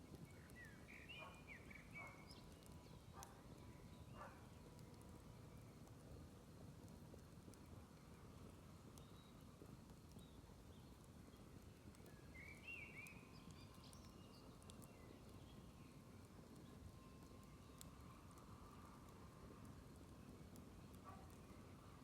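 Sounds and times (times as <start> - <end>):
faint fire crackles: 0.0 - 22.0
bird chirping: 0.4 - 4.4.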